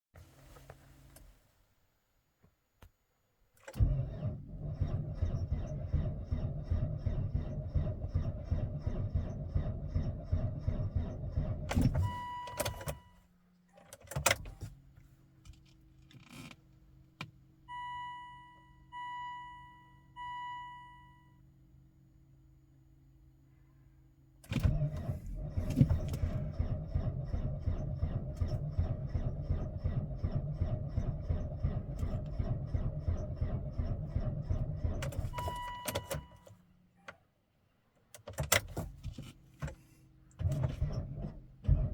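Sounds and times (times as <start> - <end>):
dashboard warning beeps: 11.8 - 13.2, 17.7 - 21.4, 35.1 - 36.5.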